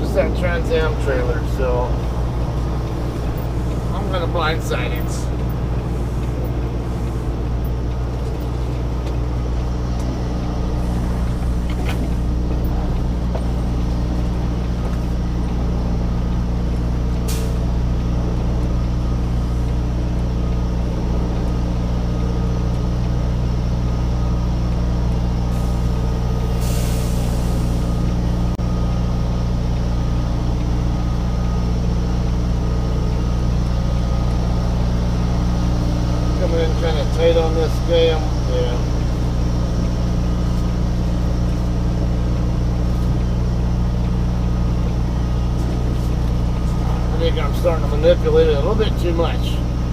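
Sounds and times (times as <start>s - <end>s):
truck diesel engine running: 0.0s - 49.9s
air brake hiss: 26.5s - 28.0s.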